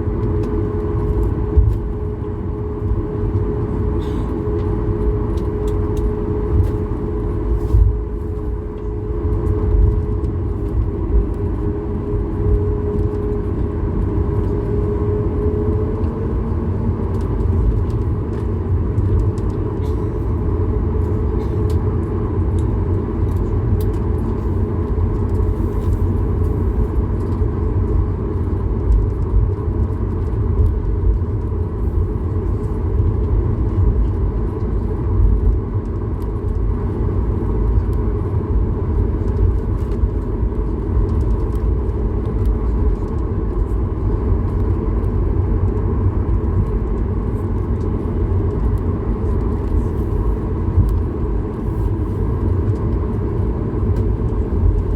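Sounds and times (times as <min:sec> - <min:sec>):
airplane cabin engine rumble: 0:00.0 - 0:54.9.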